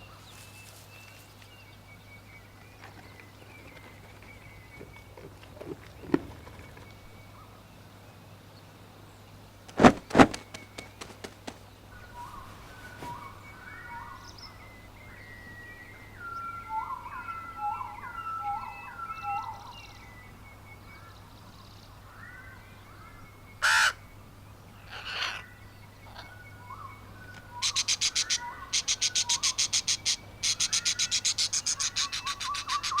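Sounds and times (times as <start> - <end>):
fast chattering bird call: 9.7 - 11.6
harsh bird caw: 23.6 - 24.0.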